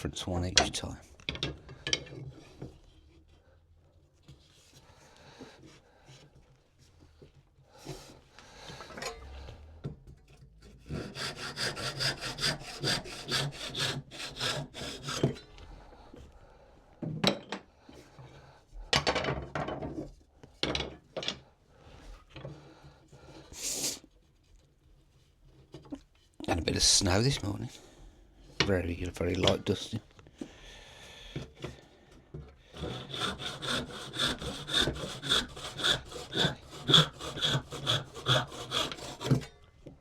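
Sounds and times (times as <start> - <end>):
hand saw cutting wood: 10.3 - 16.2, 32.6 - 39.9.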